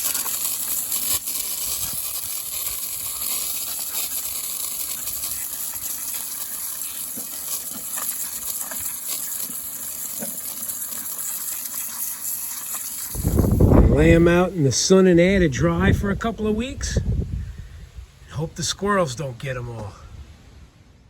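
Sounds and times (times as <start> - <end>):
running water spraying: 0.0 - 15.2.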